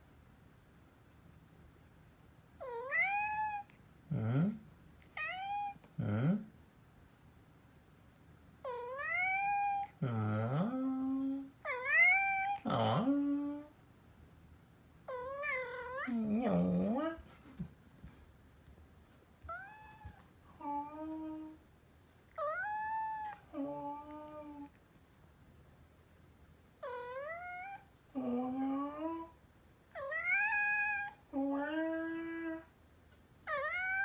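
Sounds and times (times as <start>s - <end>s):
cat meowing: 2.6s - 3.7s, 5.1s - 5.8s, 8.7s - 9.9s, 11.6s - 12.6s, 15.1s - 16.3s, 19.5s - 20.3s, 22.4s - 23.5s, 26.8s - 27.9s, 30.0s - 31.2s, 33.5s - 34.0s.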